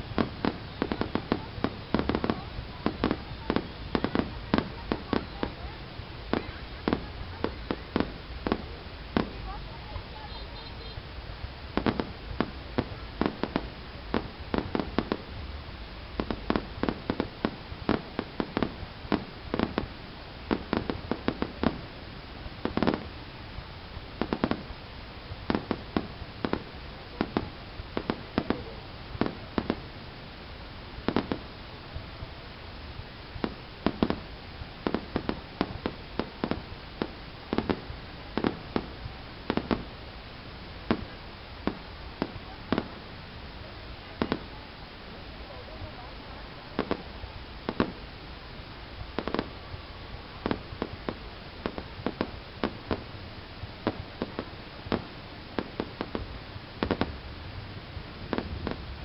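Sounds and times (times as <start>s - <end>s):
fireworks banging: 0.0s - 59.0s
low background noise: 0.0s - 59.0s.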